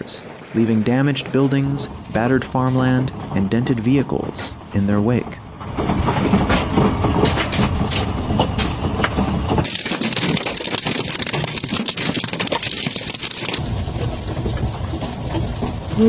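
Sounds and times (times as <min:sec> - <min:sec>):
hailstones pelting down: 0:00.0 - 0:01.6, 0:09.6 - 0:13.6
hissing downpour of hail and rain: 0:00.0 - 0:01.6, 0:09.6 - 0:13.6.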